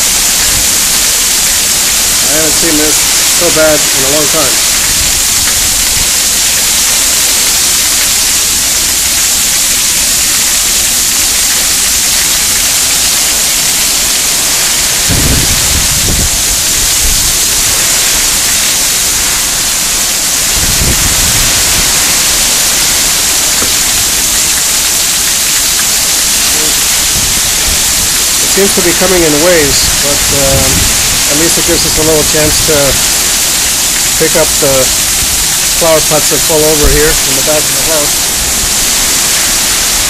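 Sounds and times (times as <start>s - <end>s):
heavy rain pouring: 0.0s - 40.0s
water running off roof: 0.0s - 40.0s
low rumbles: 11.6s - 40.0s.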